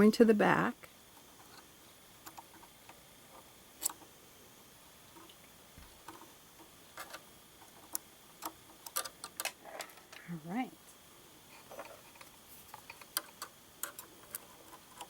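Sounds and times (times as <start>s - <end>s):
small clicks of needle and tools: 1.2s - 4.1s, 5.2s - 10.2s, 11.6s - 15.0s.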